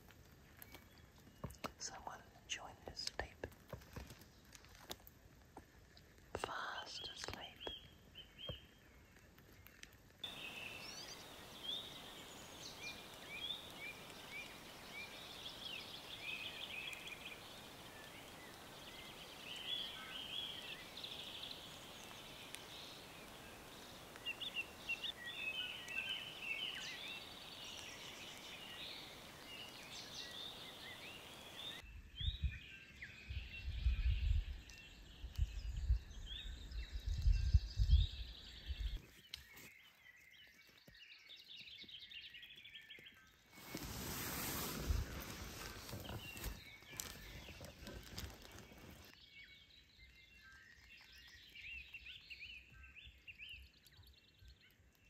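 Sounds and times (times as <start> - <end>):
steady background hiss: 10.2 - 31.8
birds chirping and whistling: 10.3 - 54.7.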